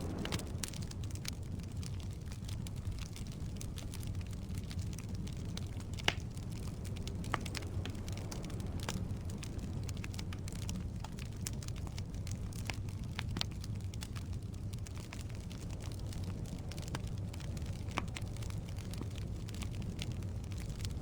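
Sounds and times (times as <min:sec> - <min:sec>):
firewood crackling and popping: 0:00.0 - 0:21.0
low rumble of flames: 0:00.0 - 0:21.0.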